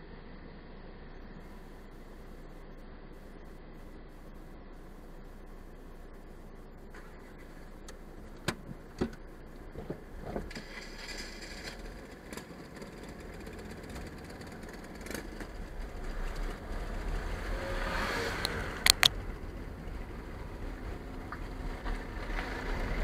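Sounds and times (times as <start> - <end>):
car engine rumbling: 0.0 - 23.0
sharp clicks: 18.4 - 19.2.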